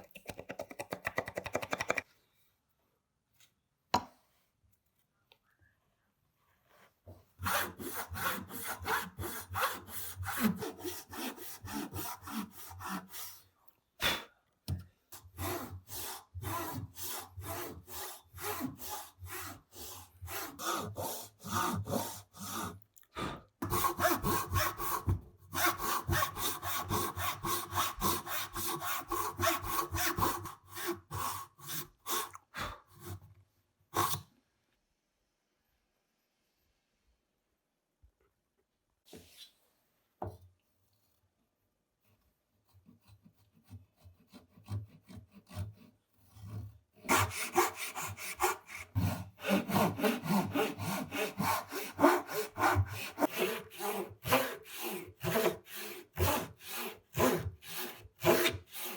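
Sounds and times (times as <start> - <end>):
hand saw cutting wood: 7.4 - 13.4, 15.2 - 22.8, 23.6 - 32.3, 33.9 - 34.3, 42.6 - 58.9.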